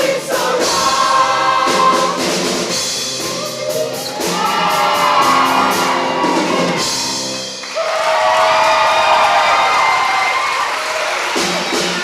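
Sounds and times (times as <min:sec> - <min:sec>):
rapid drum hits: 0:00.0 - 0:03.5
choir and band holding chords: 0:00.0 - 0:07.7
audience whooping: 0:03.2 - 0:12.0.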